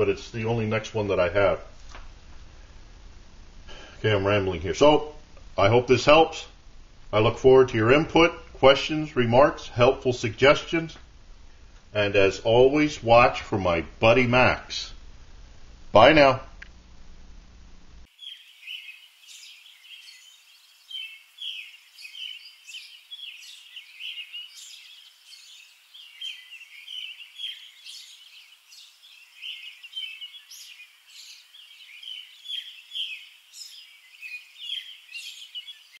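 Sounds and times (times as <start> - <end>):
birds chirping: 0.0 - 1.6, 18.0 - 36.0.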